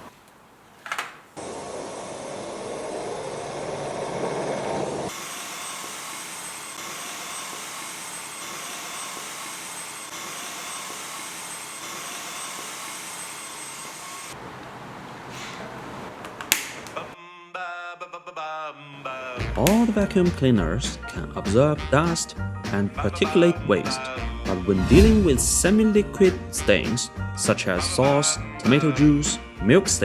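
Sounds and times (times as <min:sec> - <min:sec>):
vacuum cleaner motor whine: 0:01.4 - 0:17.2.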